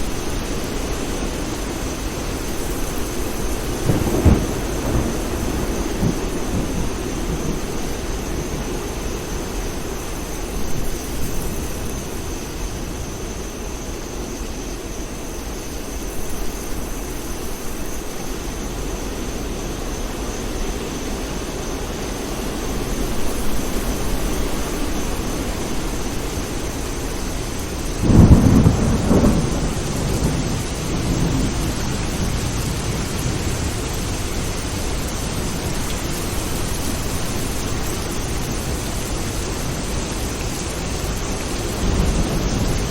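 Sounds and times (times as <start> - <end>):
steady rain: 0.0 - 42.9
low rumbles of thunder: 2.5 - 12.3, 23.0 - 42.9
loud thunderclap: 3.6 - 8.8, 28.0 - 34.2.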